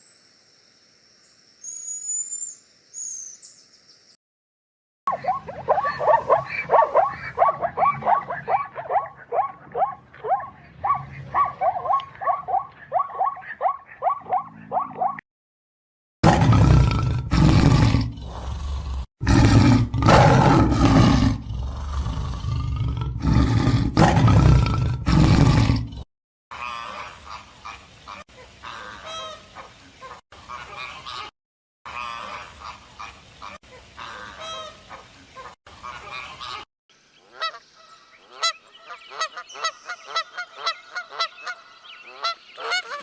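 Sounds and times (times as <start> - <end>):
big cat roaring: 16.2 - 26.0.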